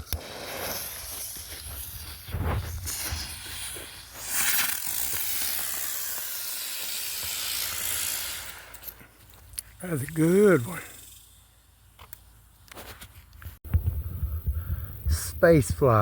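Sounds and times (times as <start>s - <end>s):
helicopter firework hissing: 0.0s - 9.0s, 9.8s - 11.9s.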